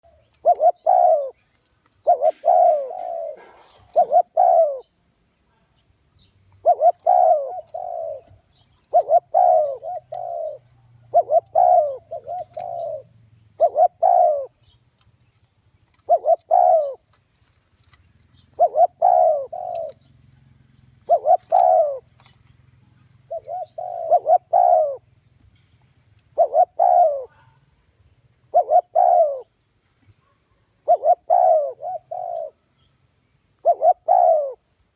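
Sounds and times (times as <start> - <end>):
dove cooing: 0.0 - 4.9, 6.6 - 15.1, 15.9 - 17.2, 17.8 - 25.2, 26.2 - 27.7, 28.4 - 29.6, 30.2 - 32.6, 33.6 - 34.7.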